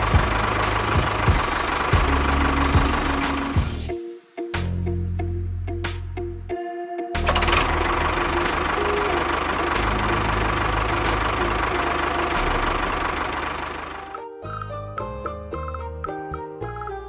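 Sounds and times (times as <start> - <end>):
engine running steadily: 0.0 - 3.9, 7.2 - 14.2.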